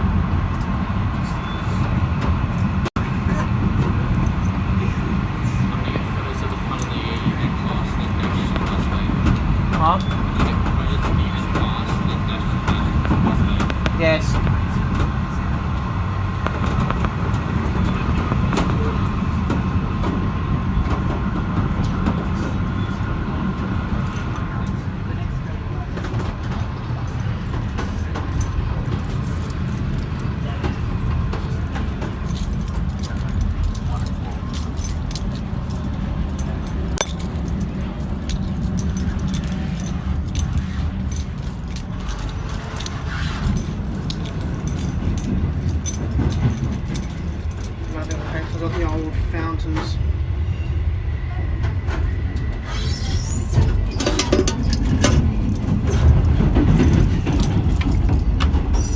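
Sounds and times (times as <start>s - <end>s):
train wheels rumbling on rails: 0.0s - 58.9s
carriage rattles and clicks: 27.5s - 49.0s, 53.8s - 58.9s.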